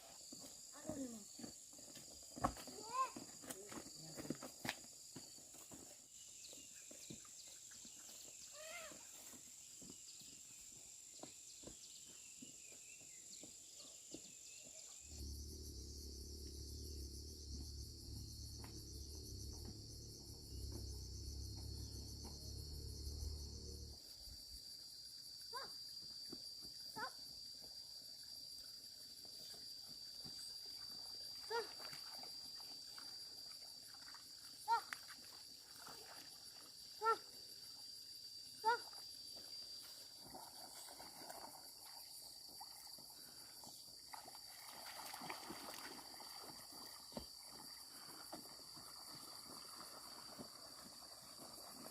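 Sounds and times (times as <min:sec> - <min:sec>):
insects buzzing: 0:06.1 - 0:51.9
low hum: 0:15.1 - 0:24.0.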